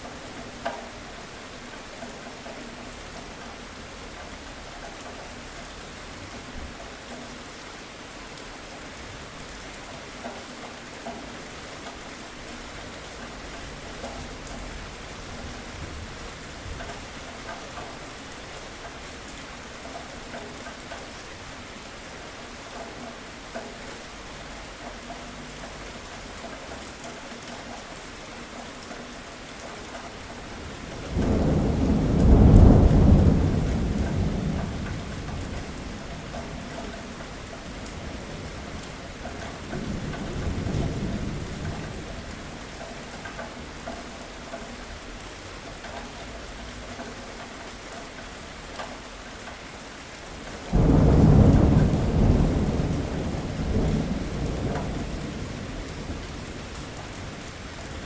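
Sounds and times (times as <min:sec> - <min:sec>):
steady rain falling: 0:00.0 - 0:58.0
thunder rumbling: 0:30.6 - 0:42.6, 0:50.5 - 0:58.0.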